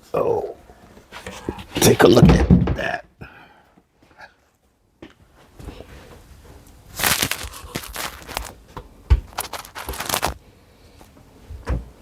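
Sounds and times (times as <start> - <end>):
crinkling and rustling: 5.4 - 10.4.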